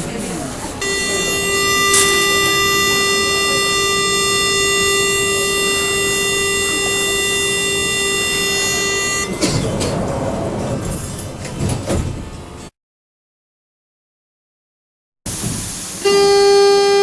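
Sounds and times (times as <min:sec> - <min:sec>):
train doors sliding shut: 0:00.6 - 0:12.7
door warning buzzer: 0:00.8 - 0:10.0, 0:16.0 - 0:17.0.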